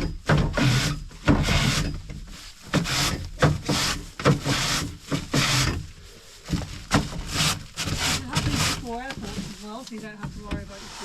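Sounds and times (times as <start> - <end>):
gear rubbing: 0.6 - 11.0
footsteps scuffing: 5.8 - 11.0.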